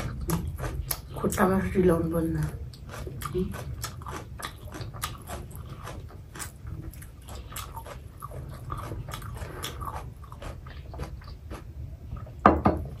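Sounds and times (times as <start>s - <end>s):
people chewing with wet smacks: 0.0s - 13.0s.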